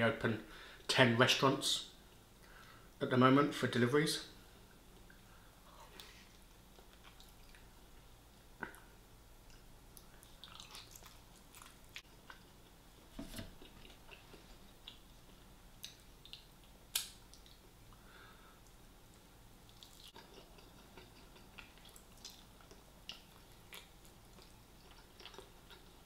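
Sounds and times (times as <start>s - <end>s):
person chewing fried chicken: 9.5s - 12.6s, 19.6s - 26.0s
crunchy snaps: 15.8s - 17.6s.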